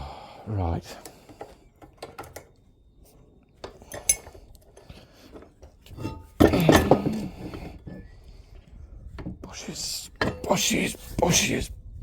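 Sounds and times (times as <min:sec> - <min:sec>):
metal tools clinking: 0:03.6 - 0:08.0.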